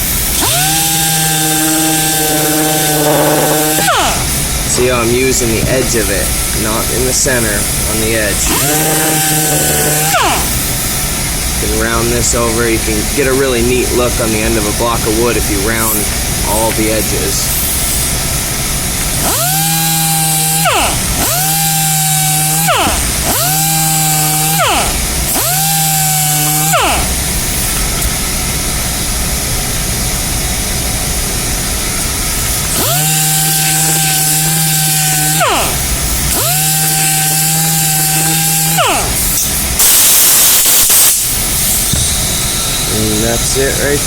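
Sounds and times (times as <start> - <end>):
orbital sander sanding hiss: 0.0 - 44.0
pitched motor hum: 0.0 - 44.0.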